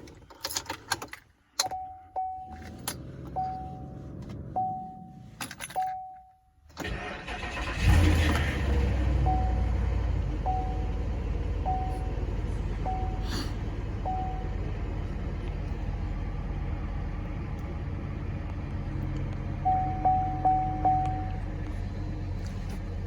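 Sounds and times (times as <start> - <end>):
car engine idling: 6.8 - 23.0
electronic warning chime: 19.7 - 21.4.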